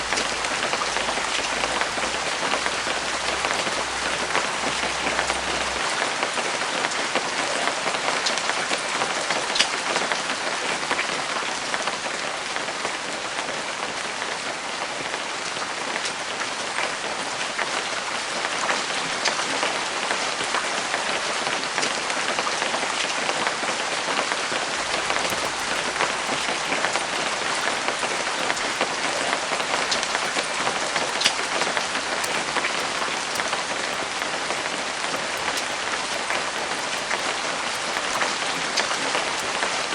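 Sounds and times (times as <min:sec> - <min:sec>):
sharp raindrop hits: 0:00.0 - 0:05.8, 0:24.8 - 0:39.9
steady rain falling: 0:00.0 - 0:05.8, 0:24.8 - 0:39.9.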